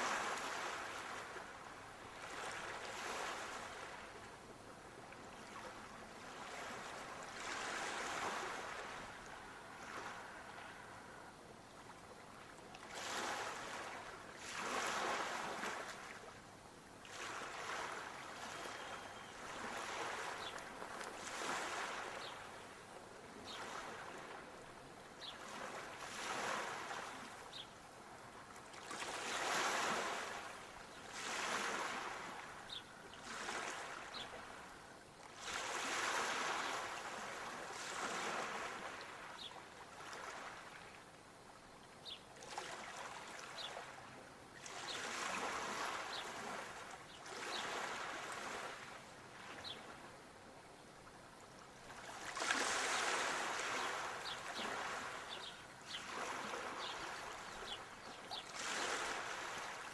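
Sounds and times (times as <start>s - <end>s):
sea waves breaking: 0.0s - 4.2s, 5.5s - 11.3s, 12.8s - 16.3s, 17.0s - 22.5s, 25.4s - 27.5s, 28.7s - 34.7s, 35.4s - 40.8s, 44.6s - 49.0s, 51.9s - 59.9s.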